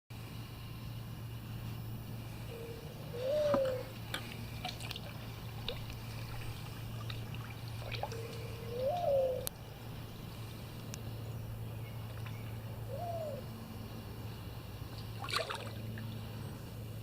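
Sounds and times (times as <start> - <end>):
bird calling: 2.3 - 14.4
water dripping: 4.1 - 9.6.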